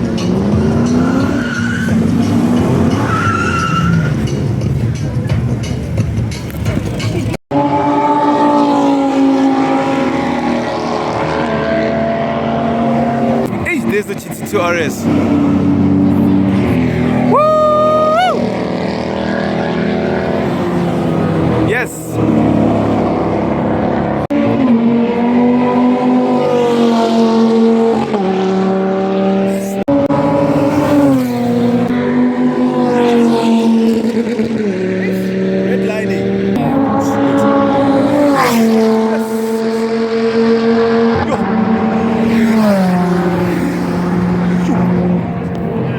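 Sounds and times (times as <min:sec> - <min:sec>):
car engine running: 0:00.0 - 0:07.4
car engine at high revs: 0:00.0 - 0:45.9.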